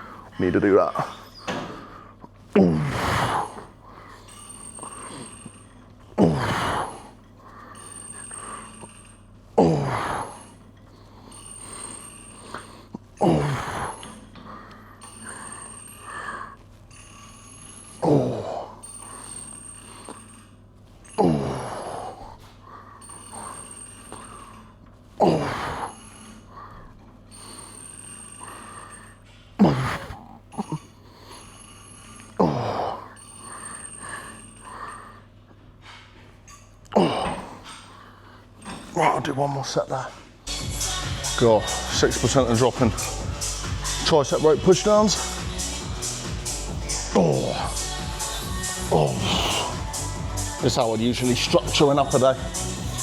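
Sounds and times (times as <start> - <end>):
man groaning with effort: 6.2 - 7.0, 9.6 - 10.4, 13.2 - 14.0, 18.0 - 18.7, 21.2 - 22.1, 25.2 - 25.9, 41.4 - 50.7.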